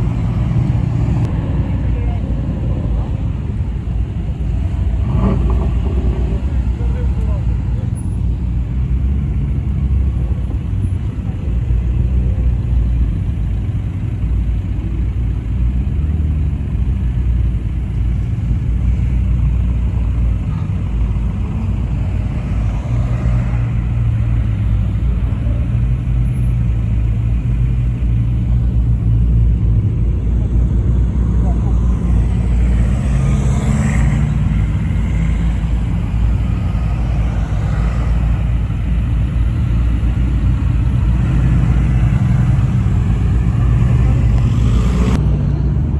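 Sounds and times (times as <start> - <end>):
car engines running: 0.0 - 45.9.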